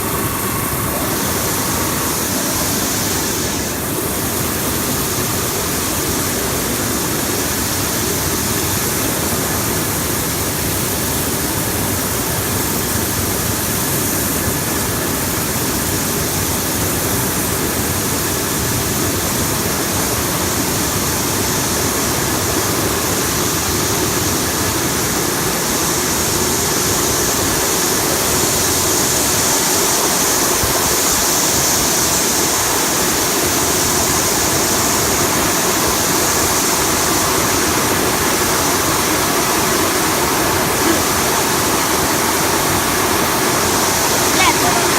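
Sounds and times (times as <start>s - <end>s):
machine hum: 0.0s - 5.1s.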